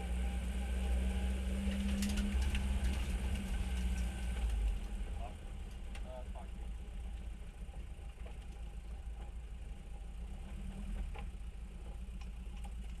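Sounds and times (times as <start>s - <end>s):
car engine idling: 0.0s - 13.0s
faint ticks: 10.4s - 13.0s.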